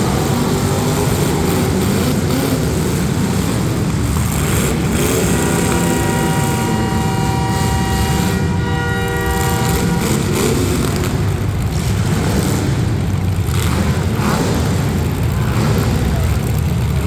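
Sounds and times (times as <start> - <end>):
car engines revving: 0.0 - 17.0
horn blaring: 4.6 - 11.6.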